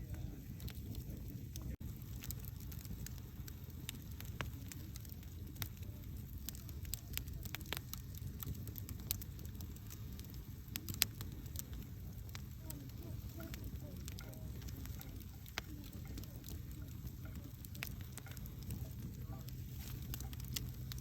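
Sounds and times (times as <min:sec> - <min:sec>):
campfire flame rumble: 0:00.0 - 0:21.0
wood crackling and popping: 0:00.0 - 0:21.0.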